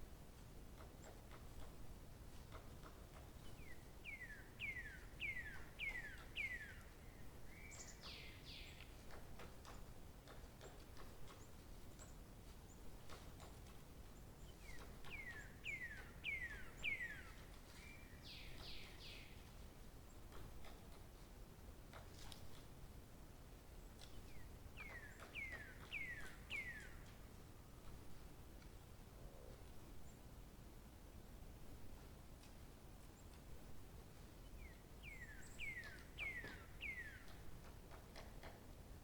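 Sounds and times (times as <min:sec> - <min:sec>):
faint outdoor background noise: 0:00.0 - 0:39.0
songbird singing whistles: 0:34.6 - 0:37.3.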